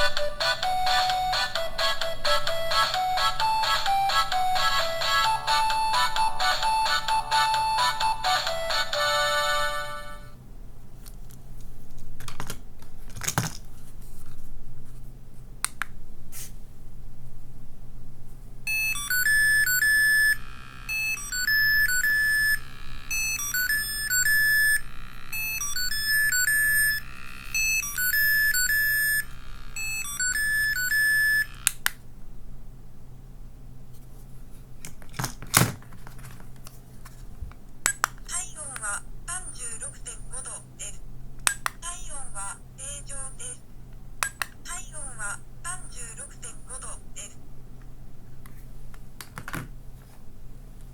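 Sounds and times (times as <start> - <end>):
electronic tone: 18.7 - 31.6.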